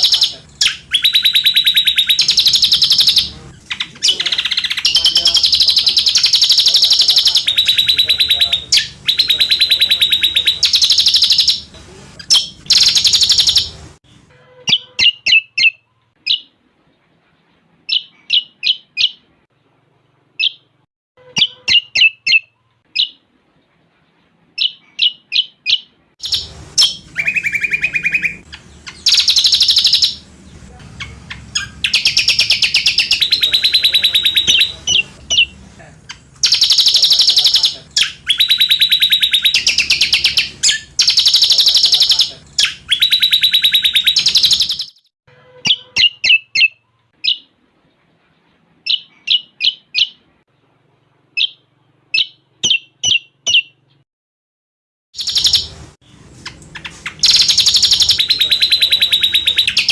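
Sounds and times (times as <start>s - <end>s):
bird chips and fast high trills: 26.2s - 30.3s, 36.4s - 45.1s, 55.2s - 55.8s, 56.8s - 59.9s.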